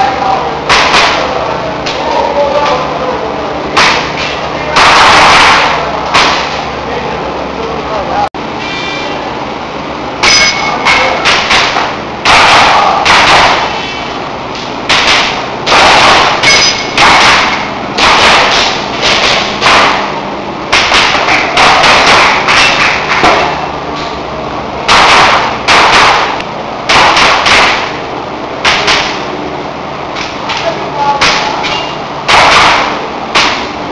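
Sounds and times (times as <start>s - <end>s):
airsoft pistol shots: 0.7s - 1.3s, 4.8s - 6.6s, 11.2s - 13.8s, 14.9s - 20.1s, 20.7s - 23.5s, 24.9s - 28.0s, 28.6s - 29.2s, 32.3s - 33.7s
brief ringing tone: 8.6s - 9.2s.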